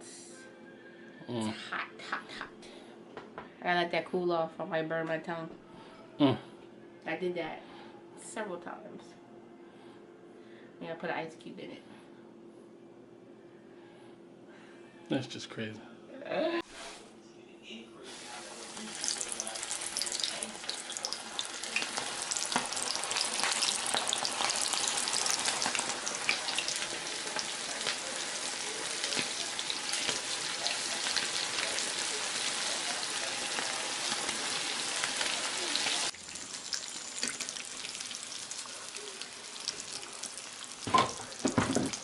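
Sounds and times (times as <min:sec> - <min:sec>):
chicken frying in hot oil: 0:18.1 - 0:42.0.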